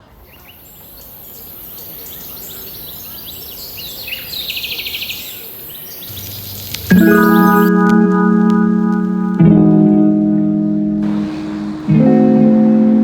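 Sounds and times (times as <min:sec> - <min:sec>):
songbirds chirping and singing: 0:00.0 - 0:07.7
steady high hiss: 0:00.1 - 0:07.9, 0:11.0 - 0:13.0
fast even bird trill: 0:00.4 - 0:07.8.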